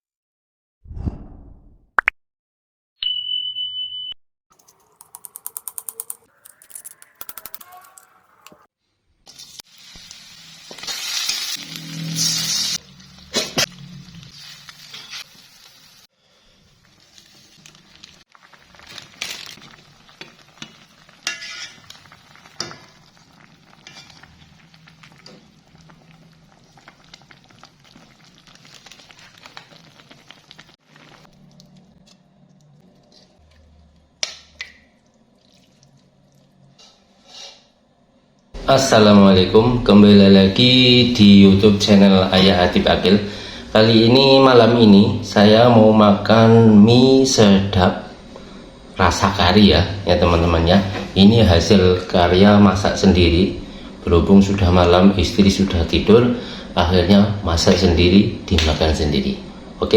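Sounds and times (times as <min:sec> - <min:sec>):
sizzling in a pan: 0:09.0 - 0:31.4, 0:34.2 - 0:37.8.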